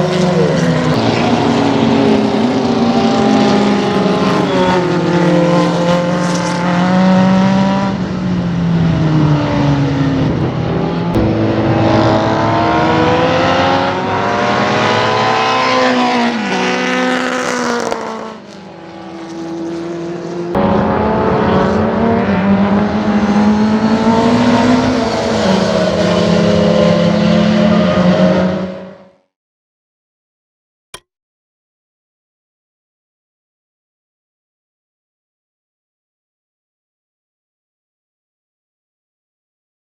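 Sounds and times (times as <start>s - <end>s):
race car engine revving: 0.0s - 29.1s.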